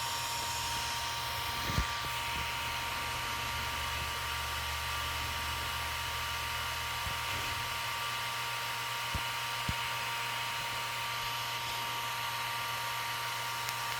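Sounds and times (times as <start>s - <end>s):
drone whirring hiss with high tones: 0.0s - 7.9s.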